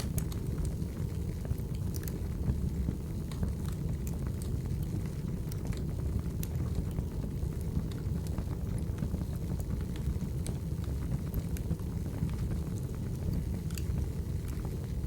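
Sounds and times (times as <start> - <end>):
wood fire burning: 0.0 - 15.0.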